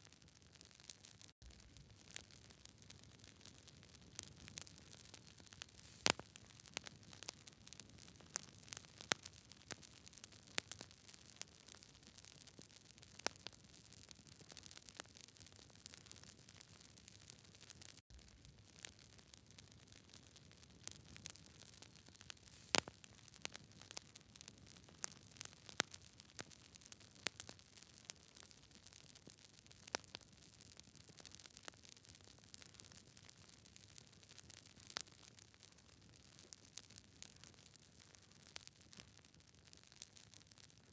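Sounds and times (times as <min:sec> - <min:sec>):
wood crackling and popping: 0:00.0 - 0:40.9
flames hissing: 0:22.4 - 0:22.9.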